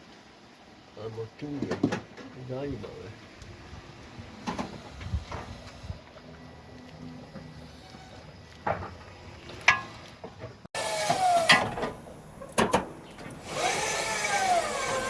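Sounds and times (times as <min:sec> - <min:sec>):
power tool whirring: 0:10.8 - 0:12.5, 0:13.2 - 0:15.0.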